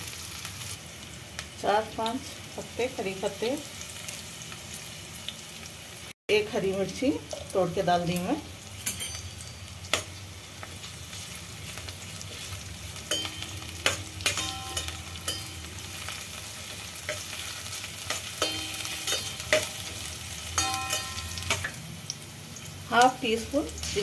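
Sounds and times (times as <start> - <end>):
onions sizzling in hot oil: 0.0 - 24.0
spatula knocking pot ringing: 8.8 - 10.1, 13.0 - 16.1, 18.1 - 21.8
metal spatula scraping pot: 16.7 - 21.8.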